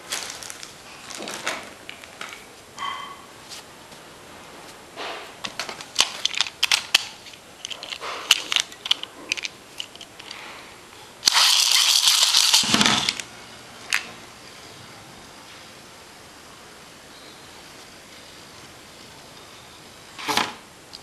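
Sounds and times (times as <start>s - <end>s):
plastic clicks and rattles: 5.4s - 10.4s
spinning top whirring rattle: 11.2s - 13.2s.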